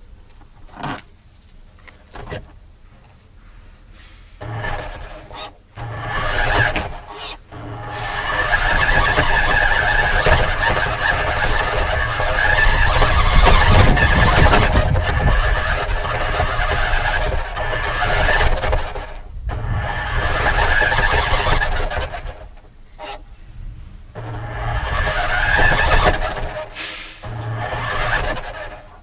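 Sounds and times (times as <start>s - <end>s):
tyres rumbling on ground: 4.1s - 29.0s
toy car motor whine: 4.4s - 23.3s, 24.1s - 29.0s.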